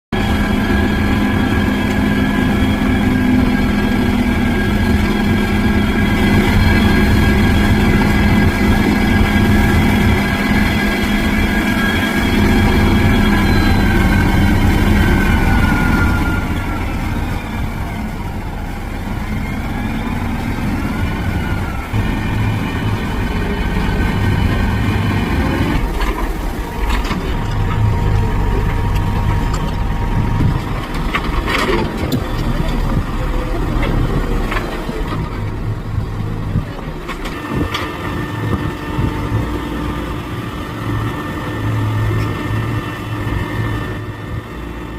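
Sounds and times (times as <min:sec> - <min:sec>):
truck engine rumbling: 0:00.1 - 0:44.9.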